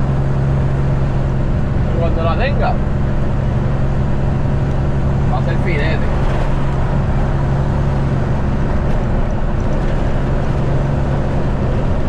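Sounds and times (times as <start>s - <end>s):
road noise: 0.0s - 12.0s
truck engine running: 0.0s - 12.0s.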